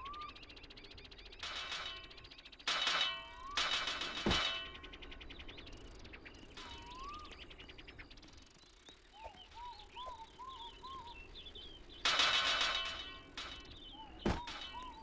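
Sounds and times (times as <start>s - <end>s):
birds chirping: 0.0s - 15.0s
anvil struck ringing: 1.4s - 5.0s, 12.0s - 15.0s.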